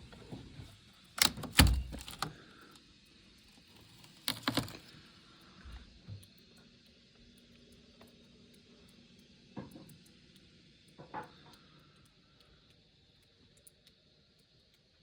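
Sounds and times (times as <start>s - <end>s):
faint scattered ticking: 4.3s - 15.0s.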